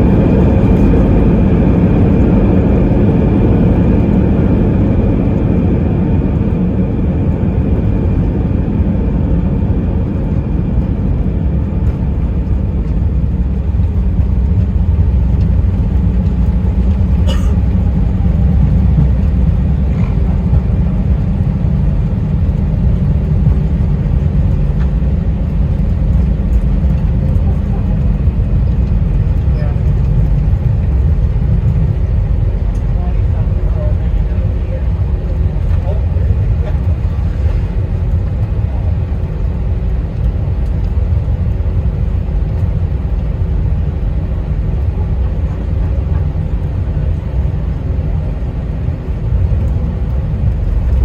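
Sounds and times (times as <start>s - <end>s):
airliner cabin rumble: 0.0s - 51.0s.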